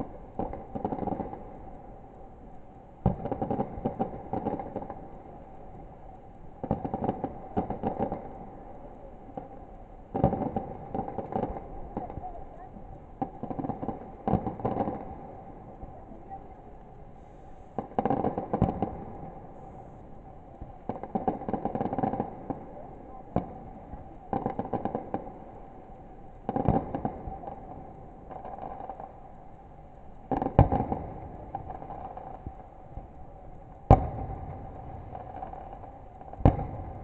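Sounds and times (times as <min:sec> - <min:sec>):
fireworks crackling bursts: 0:00.0 - 0:37.0
fireworks bangs: 0:13.2 - 0:16.6, 0:17.2 - 0:19.9, 0:33.8 - 0:37.0.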